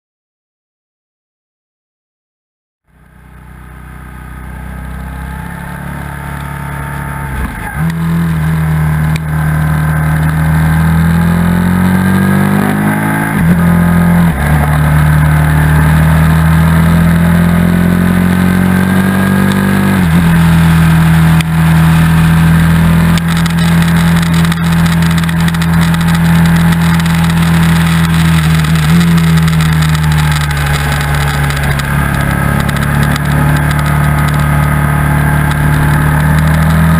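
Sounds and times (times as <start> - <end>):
motorcycle engine running: 2.9 - 36.9
wind noise: 18.9 - 36.9.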